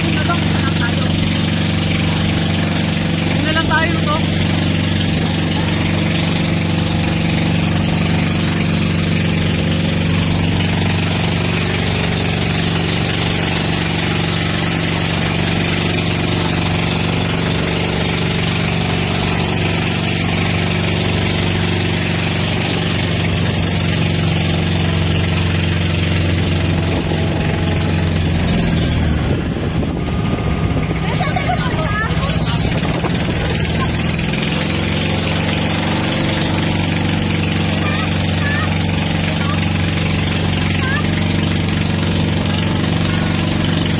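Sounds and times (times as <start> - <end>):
engine running steadily: 0.0 - 43.9.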